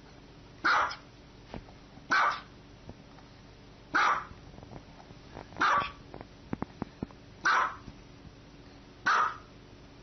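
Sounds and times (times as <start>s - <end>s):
small dog barking: 0.6s - 1.1s, 2.1s - 2.5s, 3.9s - 4.4s, 5.6s - 6.0s, 7.4s - 7.9s, 9.0s - 9.5s.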